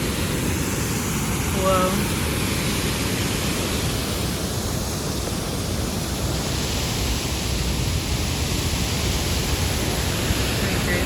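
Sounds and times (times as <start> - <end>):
water falling rushing: 0.0 - 11.0.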